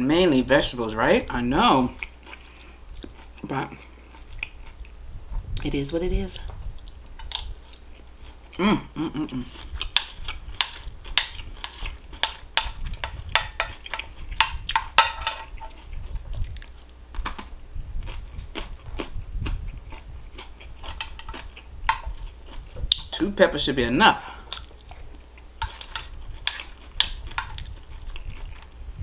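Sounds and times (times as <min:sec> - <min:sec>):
person chewing crunchy food: 0:01.6 - 0:05.6, 0:06.6 - 0:23.2, 0:24.2 - 0:29.0.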